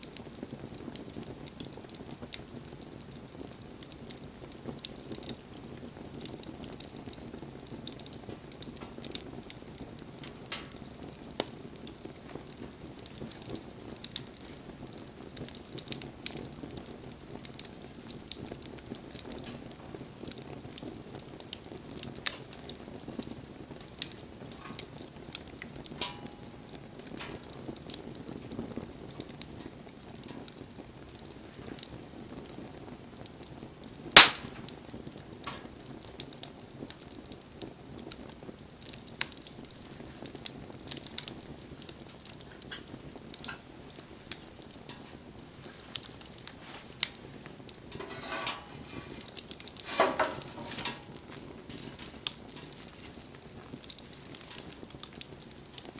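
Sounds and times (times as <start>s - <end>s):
campfire crackling: 0.0s - 55.9s
loud snap of fire: 0.0s - 55.9s
low steady hiss: 0.0s - 55.9s
sharp pops of fire: 0.0s - 55.9s.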